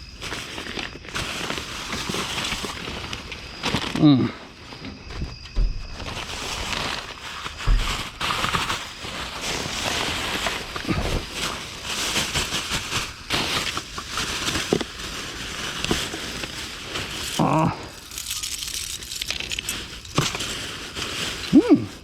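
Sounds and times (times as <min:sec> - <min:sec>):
trash bags and paper rustling: 0:00.0 - 0:22.0
knocks and thumps: 0:05.0 - 0:06.3, 0:07.6 - 0:08.6.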